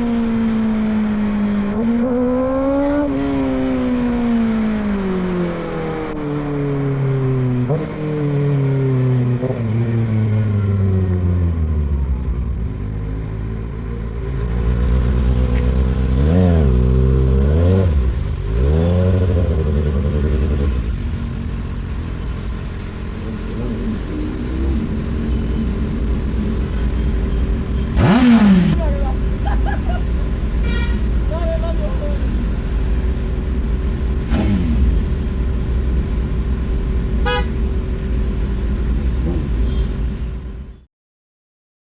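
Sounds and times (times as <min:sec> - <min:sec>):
motorcycle engine revving: 0:00.0 - 0:12.0, 0:14.0 - 0:29.3, 0:32.4 - 0:39.9
low traffic rumble: 0:00.0 - 0:40.8
vehicle horn toot: 0:30.6 - 0:31.1, 0:37.2 - 0:37.6, 0:39.6 - 0:40.0.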